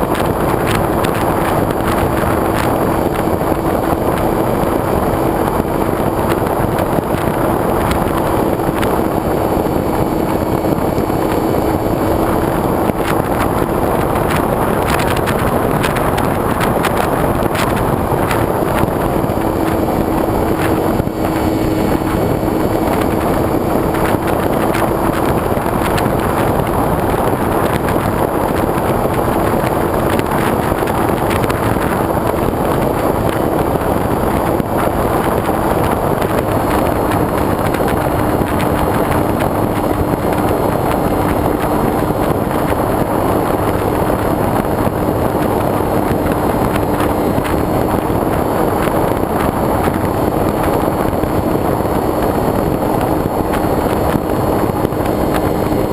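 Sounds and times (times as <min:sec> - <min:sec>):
model airplane motor humming: 0:00.0 - 0:55.9
wind rushing over camera: 0:00.0 - 0:55.9.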